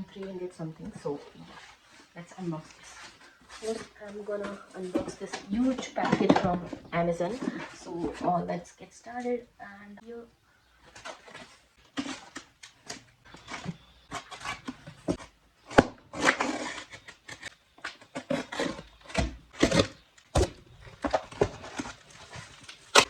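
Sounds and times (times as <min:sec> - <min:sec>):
packaging rustling and tearing: 0:10.8 - 0:23.0.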